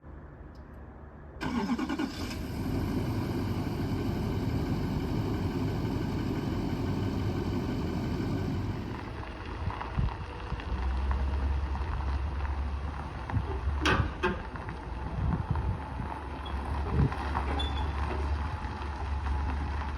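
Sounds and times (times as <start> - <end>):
engine starting and running: 1.4 - 10.0.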